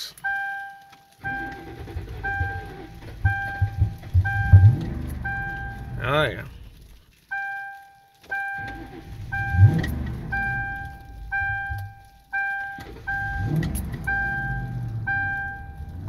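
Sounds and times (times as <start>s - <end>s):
dashboard warning chime: 0.0s - 6.3s, 7.3s - 16.0s
car engine revving: 1.2s - 7.0s, 8.5s - 16.0s.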